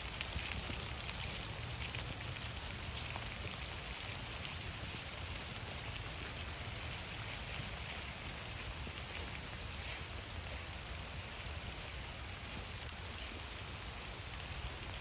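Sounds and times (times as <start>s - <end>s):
raindrops ticking on surfaces: 0.0s - 15.0s
steady rain falling: 0.0s - 15.0s.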